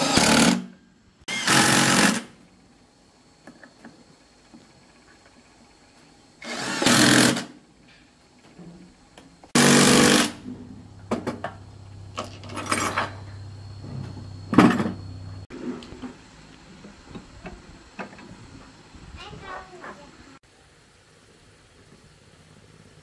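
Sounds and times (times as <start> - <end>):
loud hissing bursts: 1.3 - 2.4, 9.5 - 10.4
machine humming: 9.5 - 19.1.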